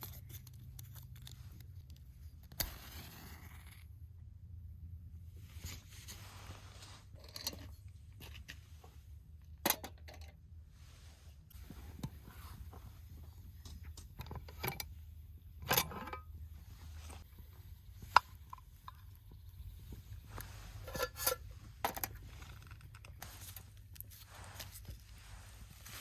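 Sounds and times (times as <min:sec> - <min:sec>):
small objects being handled: 0:00.0 - 0:03.8, 0:15.6 - 0:26.0.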